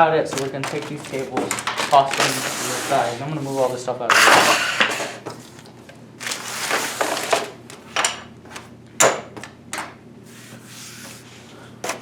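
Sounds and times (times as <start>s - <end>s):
cables and packaging rustling: 0.0s - 8.7s.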